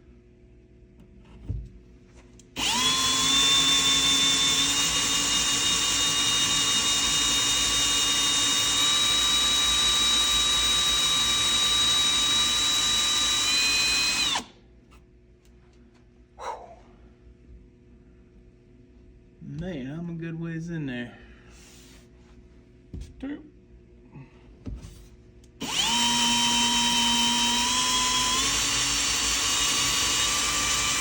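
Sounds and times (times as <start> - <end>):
power drill boring into wood: 2.6 - 14.5, 25.6 - 31.0.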